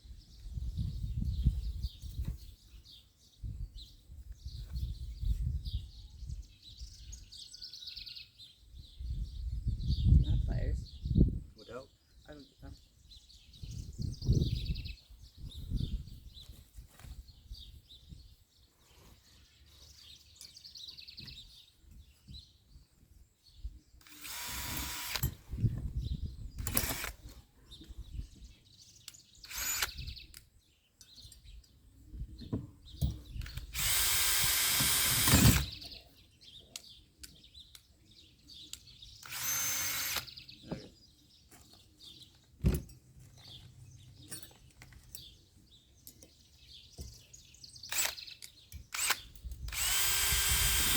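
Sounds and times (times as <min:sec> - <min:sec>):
faint birds chirping: 0:00.0 - 0:50.9
power drill bursts: 0:24.0 - 0:25.4, 0:26.6 - 0:27.2, 0:29.5 - 0:30.0, 0:33.5 - 0:35.8, 0:39.2 - 0:40.3, 0:47.9 - 0:48.2, 0:48.9 - 0:50.9.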